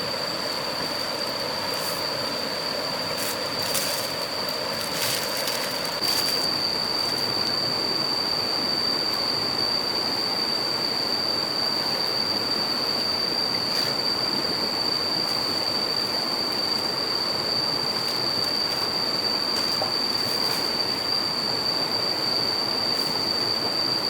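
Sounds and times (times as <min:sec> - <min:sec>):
thin high whine: 0:00.0 - 0:24.0.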